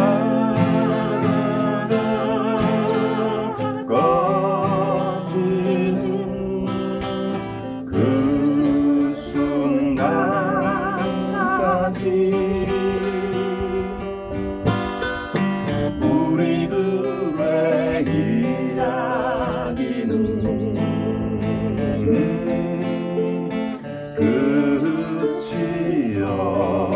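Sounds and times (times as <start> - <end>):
person singing with vibrato: 0.0 - 14.4, 15.9 - 26.9
strummed acoustic guitar: 0.0 - 26.9.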